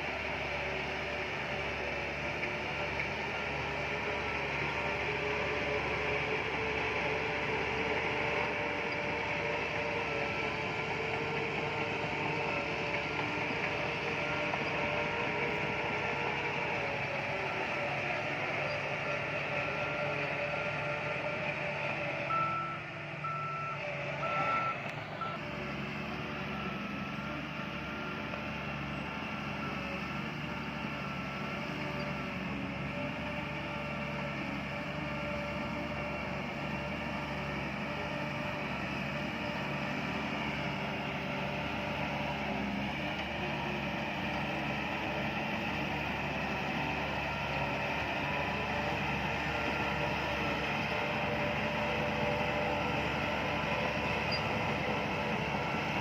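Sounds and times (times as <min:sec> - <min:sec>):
diesel engine under load: 0:00.0 - 0:56.0
reversing alarm beeping: 0:22.3 - 0:25.4.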